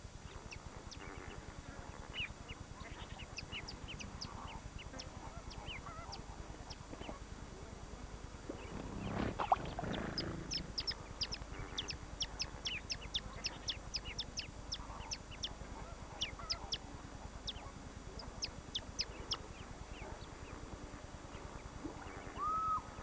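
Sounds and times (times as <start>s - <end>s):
goose-like call: 8.7s - 11.0s.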